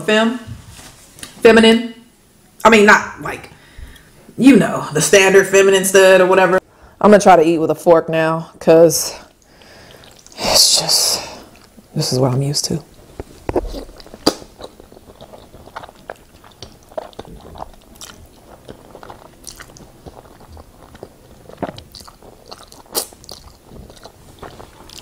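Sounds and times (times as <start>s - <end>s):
person chewing pasta: 9.4s - 10.4s, 13.2s - 25.0s
wet mouth clicks and smacks: 13.5s - 14.8s.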